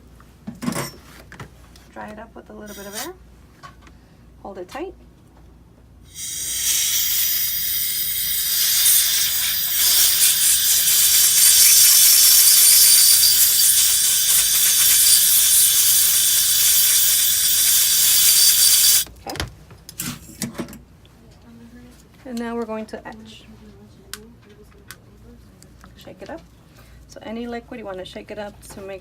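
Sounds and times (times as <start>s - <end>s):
compressed air hissing: 2.7s - 3.2s, 6.1s - 19.0s.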